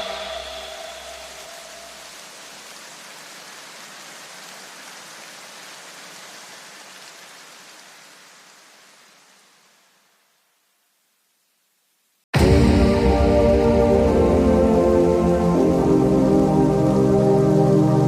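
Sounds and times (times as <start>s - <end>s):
steady rushing noise: 0.0s - 2.7s.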